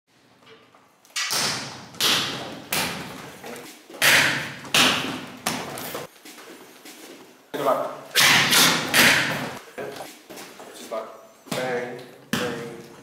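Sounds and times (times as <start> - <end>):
strikes hitting training dummy: 4.0 - 5.6, 8.2 - 9.6.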